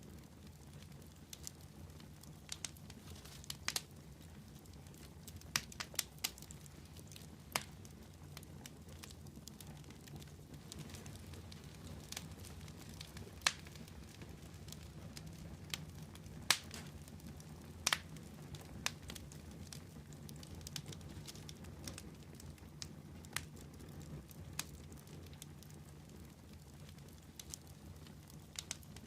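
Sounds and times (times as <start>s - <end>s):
fire crackling and popping: 0.0s - 29.0s
low fire rumble: 0.0s - 29.0s.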